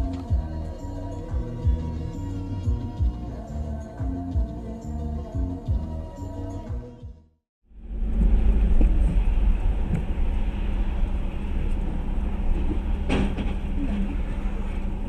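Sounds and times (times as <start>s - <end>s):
car driving rumble: 7.7s - 15.0s.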